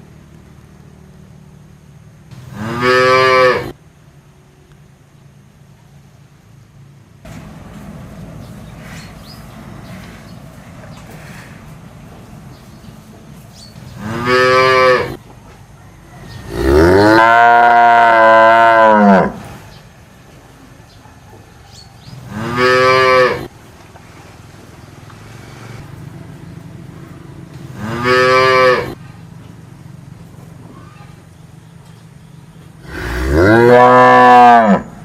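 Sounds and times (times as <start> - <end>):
cow mooing: 2.5 - 3.8, 14.0 - 15.2, 16.4 - 19.5, 22.2 - 23.5, 27.7 - 29.0, 32.8 - 35.0.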